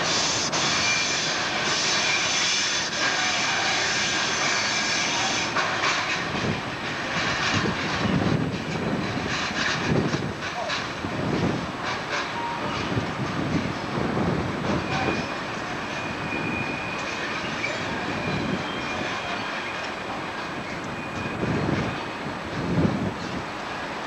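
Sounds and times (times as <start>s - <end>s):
train wheels thudding over rail joints: 2.9s - 23.5s
faint thin wheel squeal: 14.8s - 19.9s.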